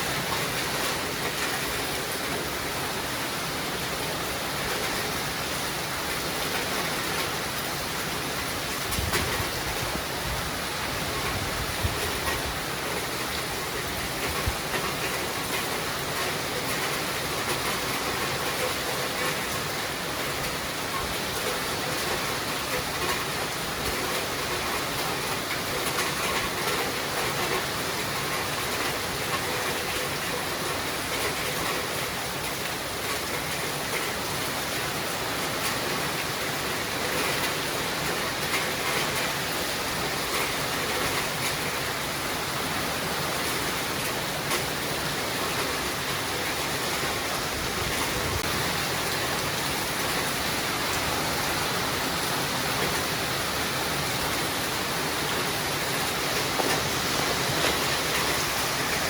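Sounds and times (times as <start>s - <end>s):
steady rain hiss: 0.0s - 59.0s
faint raindrop ticks: 14.0s - 34.8s, 35.4s - 41.8s.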